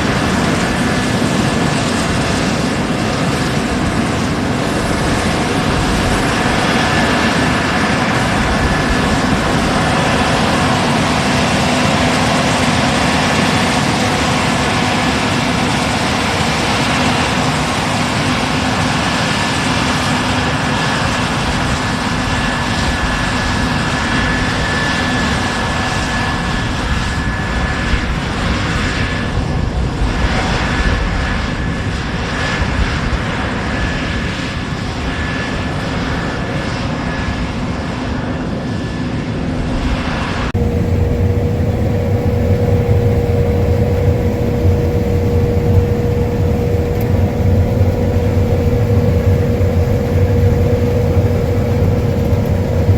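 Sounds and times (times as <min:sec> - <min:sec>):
combine harvester drone: 0:40.6 - 0:52.9
high machine whine: 0:40.6 - 0:52.9.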